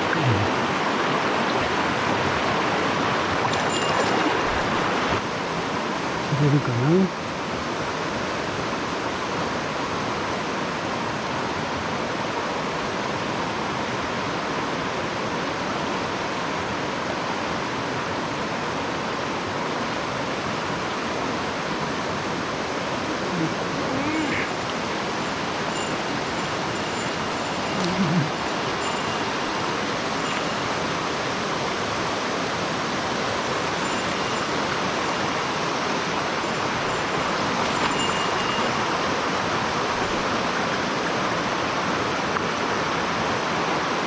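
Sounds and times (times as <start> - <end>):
short low voice: 0.0 - 0.6, 6.3 - 7.2, 23.0 - 24.6, 27.7 - 28.4
stream rushing over rocks: 0.0 - 44.0.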